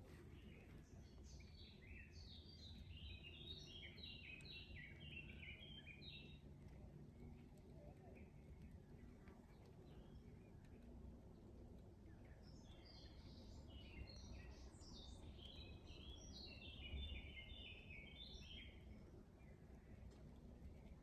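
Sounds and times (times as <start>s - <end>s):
songbird singing: 0.4s - 6.3s, 12.4s - 19.5s.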